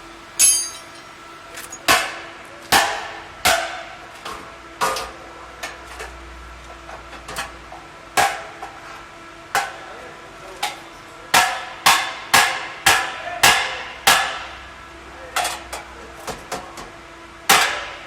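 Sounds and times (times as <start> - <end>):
hammer striking sheet metal: 0.4 - 1.0.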